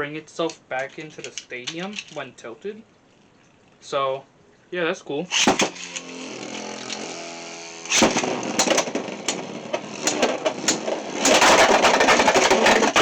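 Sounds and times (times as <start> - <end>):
spinning tops whirring: 5.3 - 13.0.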